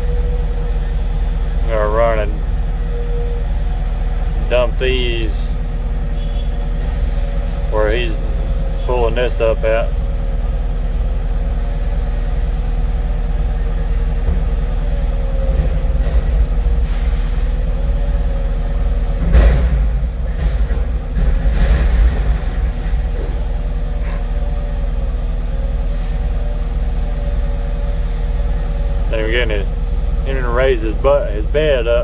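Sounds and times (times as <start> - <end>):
diesel engine rumbling: 0.0 - 32.0
hydraulic whine: 0.0 - 32.0
loud clunk: 19.2 - 24.4.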